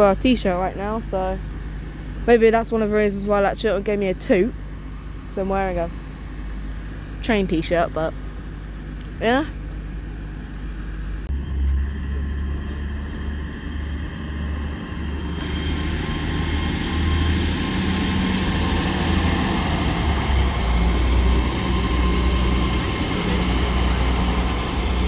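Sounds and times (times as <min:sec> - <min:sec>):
train engine rumble: 0:00.0 - 0:25.0
rail noise: 0:13.3 - 0:25.0.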